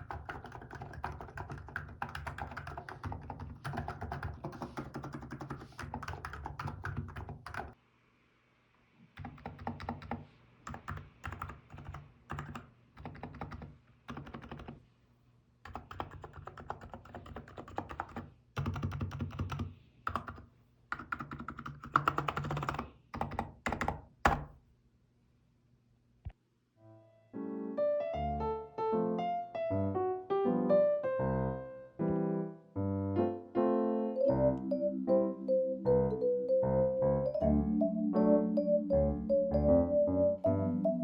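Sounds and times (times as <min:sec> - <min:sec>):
keyboard typing: 0:00.0 - 0:07.8, 0:09.2 - 0:14.8, 0:15.6 - 0:24.5.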